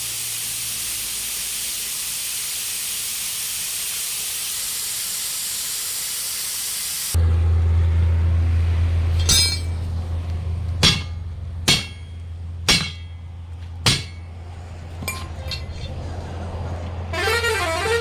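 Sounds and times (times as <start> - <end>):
hammer hitting metal: 9.1 - 9.9, 10.8 - 14.4, 15.0 - 16.0.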